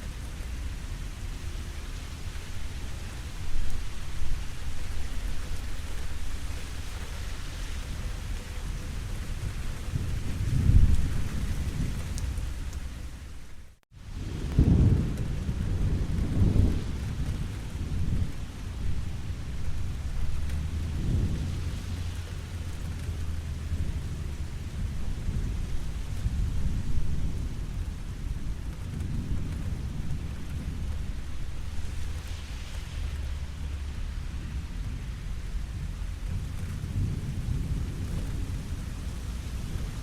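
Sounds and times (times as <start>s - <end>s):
heavy rain falling: 0.0s - 40.0s
low rolling thunder: 0.0s - 40.0s.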